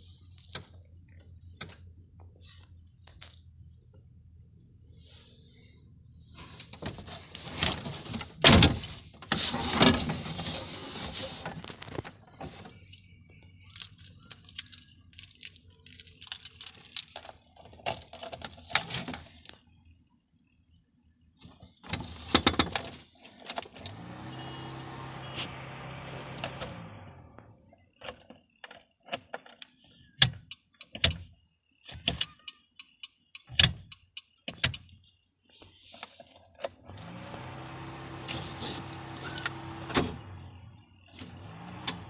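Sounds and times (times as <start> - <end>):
car keys jangling: 11.8 - 19.2
engine starting with mechanical hum: 21.8 - 29.1, 36.5 - 42.0.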